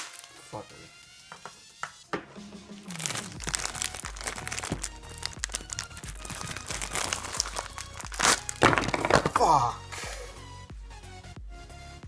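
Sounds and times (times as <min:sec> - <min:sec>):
crinkling handling sounds: 0:00.0 - 0:01.5, 0:02.9 - 0:09.5.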